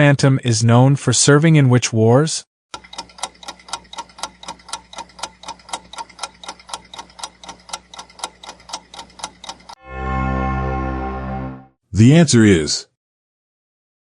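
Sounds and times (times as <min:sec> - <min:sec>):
clock ticking: 0:02.7 - 0:09.8.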